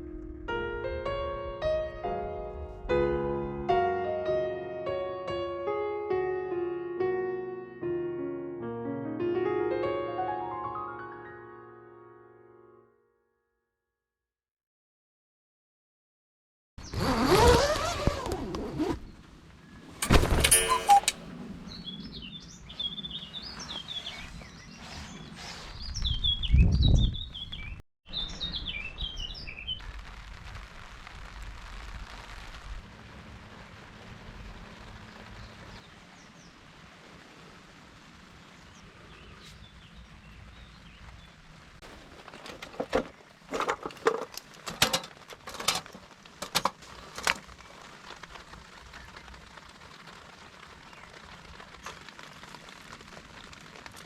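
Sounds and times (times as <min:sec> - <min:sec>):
small birds chirping: 0:21.4 - 0:29.8, 0:38.4 - 0:41.4
steady outdoor hiss: 0:29.9 - 0:54.0
sharp knocks and clatters: 0:41.8 - 0:47.5.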